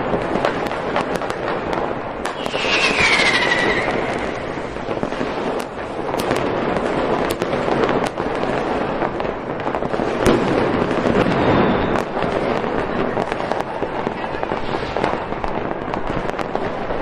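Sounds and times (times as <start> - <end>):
firework bangs: 0.0 - 16.9
fireworks crackling: 0.0 - 17.0.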